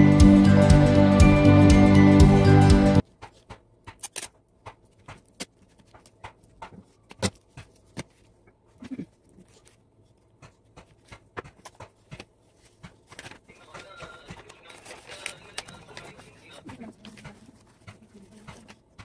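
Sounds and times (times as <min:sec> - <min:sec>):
background music: 0:00.0 - 0:03.0
sticky tape being handled: 0:03.1 - 0:08.4, 0:09.2 - 0:19.0
paper rustling: 0:04.1 - 0:19.0.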